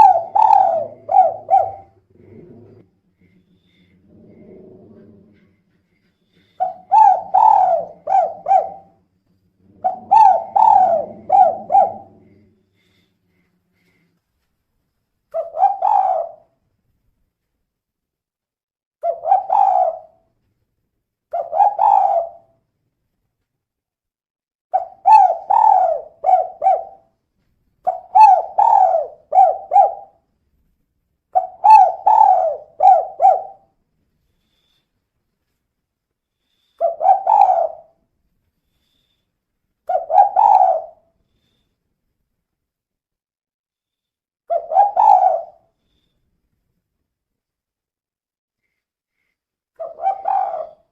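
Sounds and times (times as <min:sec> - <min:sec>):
dove cooing: 0:00.0 - 0:02.9, 0:03.7 - 0:05.6, 0:06.4 - 0:09.0, 0:09.6 - 0:13.1, 0:15.3 - 0:16.5, 0:19.0 - 0:20.2, 0:21.3 - 0:22.5, 0:24.8 - 0:27.1, 0:27.8 - 0:30.2, 0:31.4 - 0:33.8, 0:36.8 - 0:38.0, 0:39.9 - 0:41.1, 0:44.5 - 0:45.7, 0:49.8 - 0:50.9.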